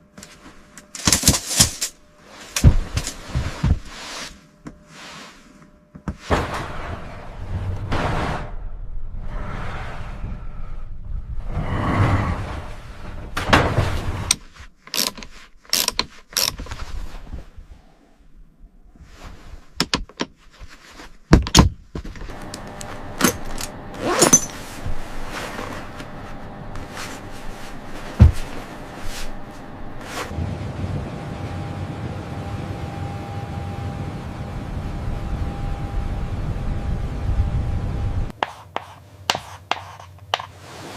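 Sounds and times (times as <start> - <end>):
building work knocks and clatter: 6.0 - 8.6, 11.4 - 14.6
faint steady hum: 21.8 - 40.6.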